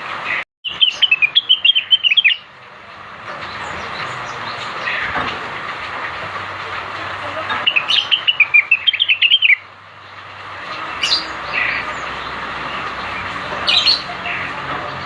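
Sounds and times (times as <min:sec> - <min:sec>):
bird chirping song: 0:00.6 - 0:02.5, 0:07.6 - 0:09.7, 0:10.6 - 0:15.0.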